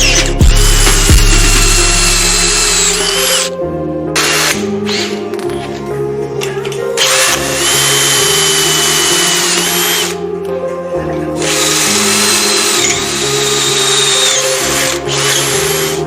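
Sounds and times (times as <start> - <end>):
handheld power tool running: 0.0 - 3.5, 4.2 - 5.2, 7.0 - 10.2, 11.4 - 16.0
background music: 0.0 - 16.0.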